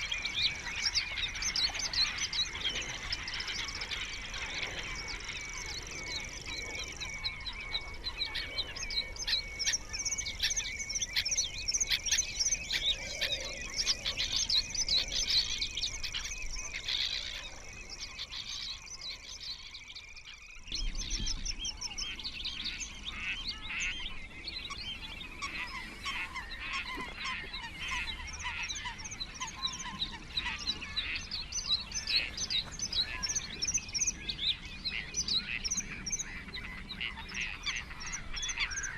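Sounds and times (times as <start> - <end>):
birds chirping and singing: 0.0 - 38.9
honking bird calls: 25.4 - 38.9.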